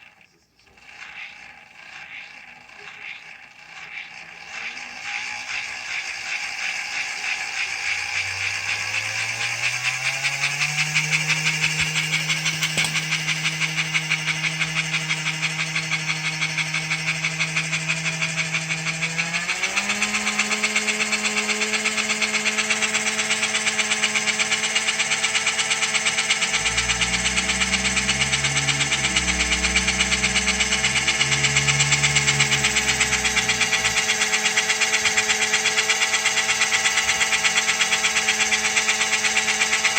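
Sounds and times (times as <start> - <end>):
fast buzzing rattle: 0.0 - 39.9
toy train motor whining: 0.0 - 39.9.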